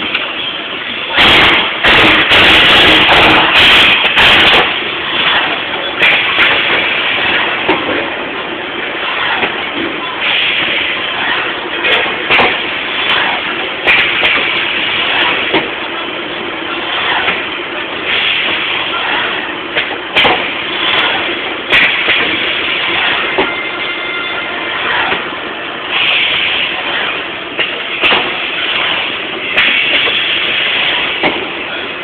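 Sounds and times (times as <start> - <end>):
machine running: 1.0 - 32.0
machine hiss: 1.1 - 7.9, 10.2 - 15.8, 17.0 - 23.4, 25.9 - 31.6.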